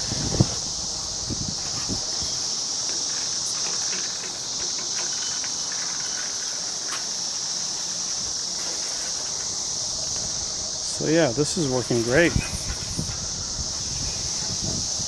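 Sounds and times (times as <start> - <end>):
insect chorus buzzing: 0.0 - 15.0
faint clicks and rustles: 1.5 - 10.7.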